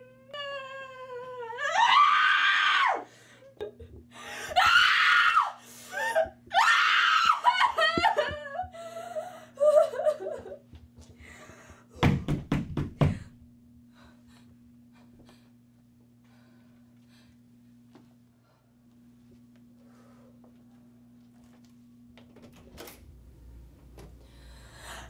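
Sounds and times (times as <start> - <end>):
girl screaming: 1.6 - 3.1, 4.5 - 5.6, 6.5 - 8.2
steady low hum: 3.0 - 25.0.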